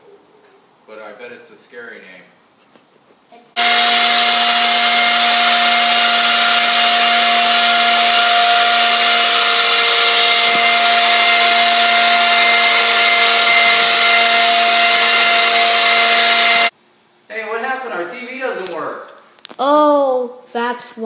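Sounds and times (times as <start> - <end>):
electric blower rushing air: 3.6 - 16.7.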